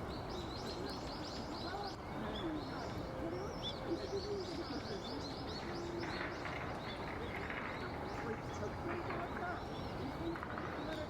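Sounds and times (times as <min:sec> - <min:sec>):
faint voices murmuring: 0:00.0 - 0:11.0
small birds twittering: 0:00.0 - 0:11.0.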